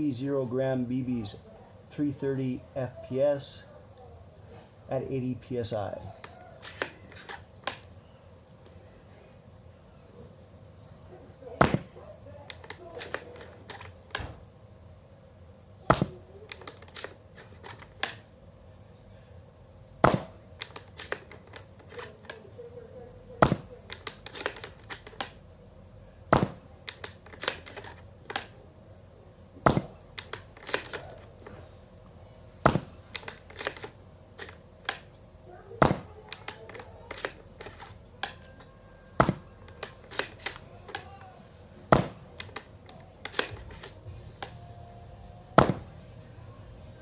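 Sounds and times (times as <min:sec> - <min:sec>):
airsoft gun shots: 0:06.0 - 0:07.9, 0:11.5 - 0:14.5, 0:15.9 - 0:18.3, 0:20.0 - 0:22.4, 0:23.4 - 0:25.4, 0:26.3 - 0:28.6, 0:29.6 - 0:31.7, 0:32.6 - 0:44.7, 0:45.5 - 0:46.1
small clicks and knocks: 0:06.0 - 0:07.9, 0:11.6 - 0:14.5, 0:15.8 - 0:18.3, 0:20.0 - 0:22.7, 0:23.4 - 0:25.5, 0:26.3 - 0:28.7, 0:29.6 - 0:31.8, 0:32.6 - 0:44.6
pellets hitting a pillow: 0:11.4 - 0:14.6, 0:15.8 - 0:18.3, 0:20.0 - 0:22.5, 0:23.2 - 0:25.5, 0:26.2 - 0:28.6, 0:29.5 - 0:31.8, 0:32.5 - 0:46.3.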